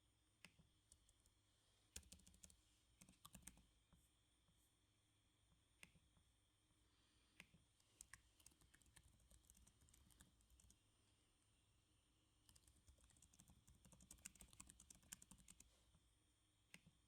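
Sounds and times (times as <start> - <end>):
typing on computer keyboard: 2.0 - 3.6, 8.0 - 10.8, 12.5 - 15.7.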